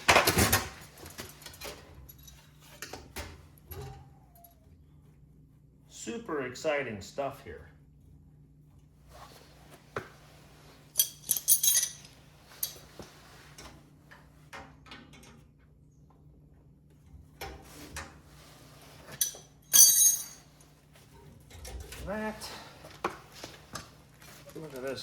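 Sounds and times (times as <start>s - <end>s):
metal tools clinking and clattering: 0.0s - 3.1s, 11.0s - 12.9s, 19.0s - 20.7s.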